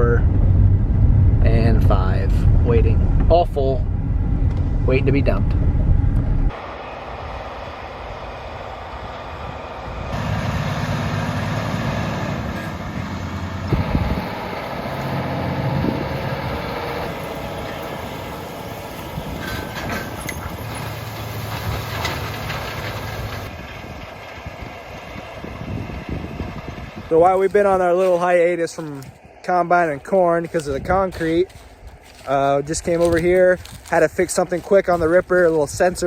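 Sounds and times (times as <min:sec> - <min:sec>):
vehicle engine running: 0:00.0 - 0:28.2.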